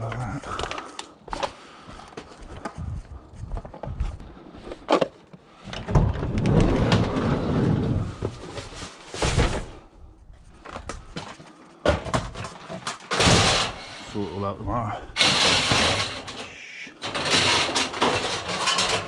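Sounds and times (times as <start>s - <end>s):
metal scrap scraping: 13.0s - 14.4s, 15.1s - 19.0s.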